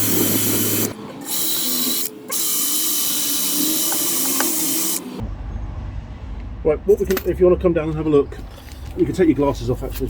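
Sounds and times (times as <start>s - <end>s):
power tool grinding metal: 0.0s - 5.2s.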